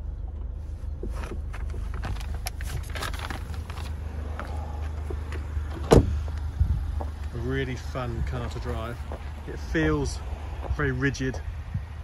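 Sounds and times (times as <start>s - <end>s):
car engine idling: 0.0s - 12.0s
knocks and rustles in car: 0.3s - 7.3s.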